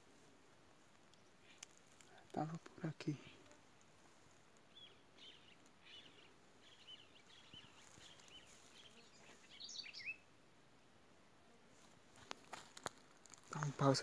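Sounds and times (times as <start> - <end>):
faint small birds chirping: 0.0 - 10.9.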